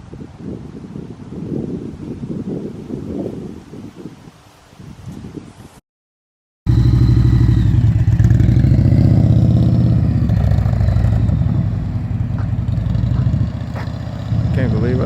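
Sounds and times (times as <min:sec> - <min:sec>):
motorcycle engine running: 0:06.7 - 0:15.0.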